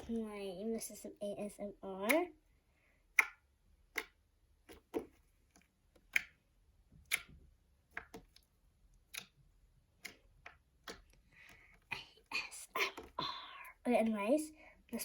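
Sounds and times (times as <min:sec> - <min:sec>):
slime clicking and popping: 0:03.1 - 0:05.3, 0:05.9 - 0:11.2.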